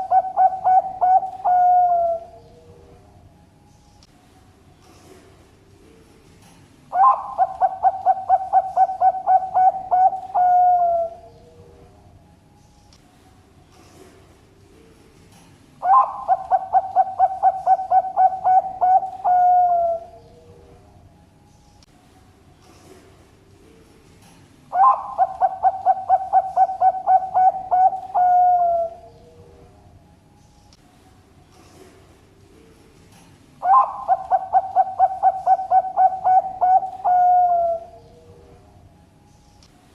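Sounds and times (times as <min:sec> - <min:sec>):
dove cooing: 0:00.0 - 0:02.8, 0:06.9 - 0:11.8, 0:15.8 - 0:20.8, 0:24.7 - 0:29.6, 0:33.6 - 0:38.6.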